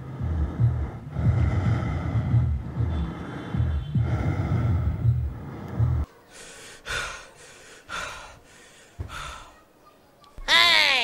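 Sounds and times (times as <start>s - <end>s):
low pulsing sound: 0.0s - 6.1s
person gasping for breath: 6.3s - 9.6s.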